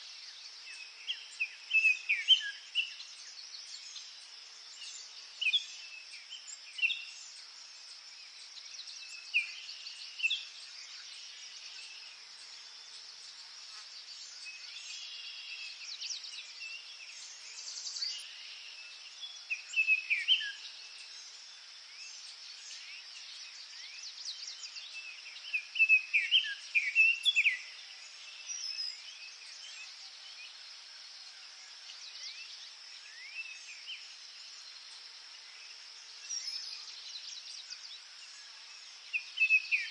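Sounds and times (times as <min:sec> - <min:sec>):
birds chirping and singing: 0:08.7 - 0:30.8, 0:31.5 - 0:39.9.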